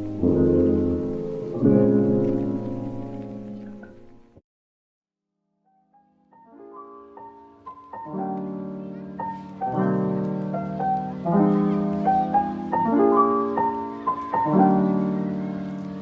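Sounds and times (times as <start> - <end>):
soft piano chords: 0.0 - 4.4, 6.2 - 16.0.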